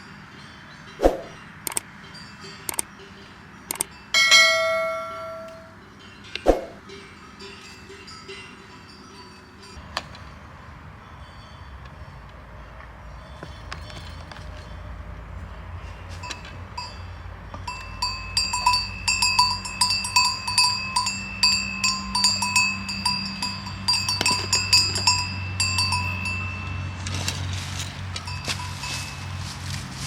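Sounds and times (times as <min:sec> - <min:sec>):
metal bell clanking: 0:02.0 - 0:09.8, 0:16.2 - 0:29.8.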